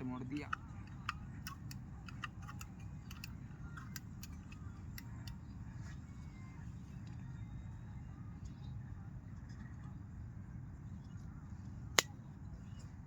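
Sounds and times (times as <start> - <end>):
camp cooking gear clicking: 0.2 - 5.4.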